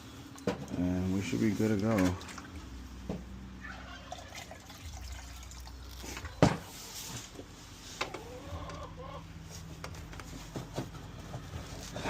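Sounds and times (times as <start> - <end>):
liquid sloshing in bottles: 0.3 - 7.0.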